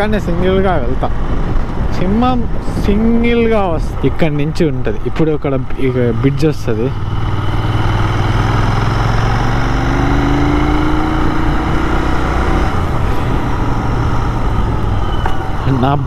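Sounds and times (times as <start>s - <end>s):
wind rushing: 0.0s - 16.0s
motorcycle engine running: 5.8s - 16.0s
rising tone: 6.9s - 15.8s.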